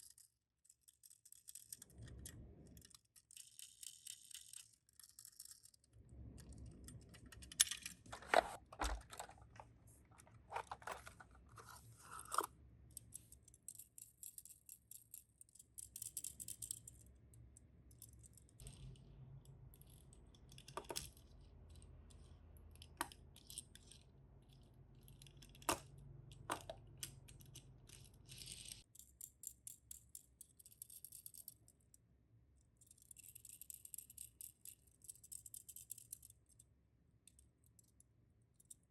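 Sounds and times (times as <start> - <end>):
toy cars clicking and knocking: 0.0 - 31.9, 32.8 - 36.6
packaging rustling: 8.0 - 12.5.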